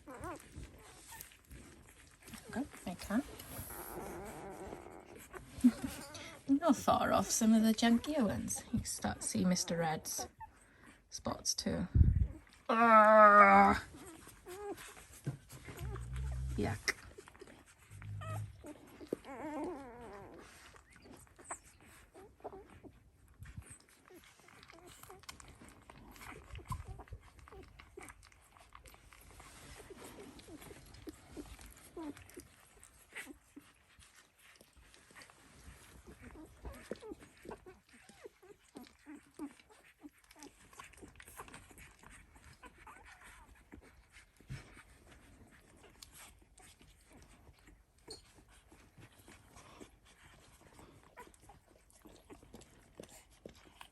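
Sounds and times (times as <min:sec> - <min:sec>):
puppies squeaking: 0:00.0 - 0:10.6, 0:13.9 - 0:22.9, 0:29.8 - 0:35.3, 0:36.0 - 0:44.7, 0:47.0 - 0:53.9.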